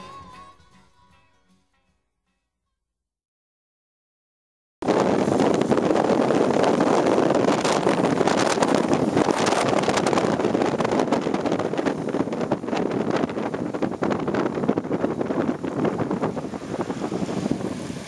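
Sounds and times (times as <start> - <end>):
wind buffeting microphone: 4.8 - 18.0
motorcycle engine and road noise: 4.9 - 18.0.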